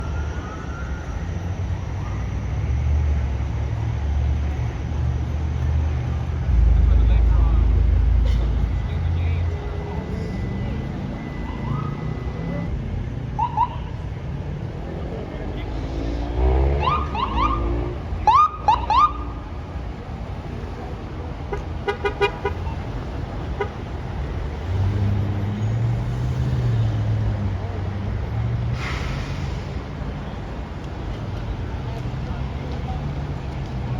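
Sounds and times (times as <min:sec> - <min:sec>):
siren whoop chirps: 0:00.0 - 0:02.1, 0:09.8 - 0:12.7, 0:16.7 - 0:19.4
road traffic noise: 0:00.0 - 0:33.9
vehicle engines rumbling: 0:00.0 - 0:33.9
horn blasts: 0:21.5 - 0:22.8.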